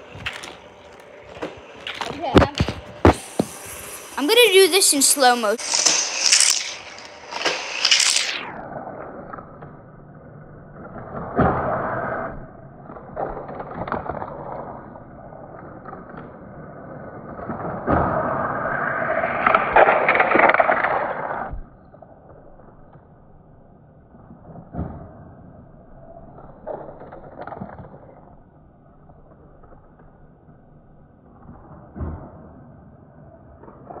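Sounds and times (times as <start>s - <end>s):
toy cars rolling on plastic track: 3.2s - 8.4s, 17.4s - 21.4s.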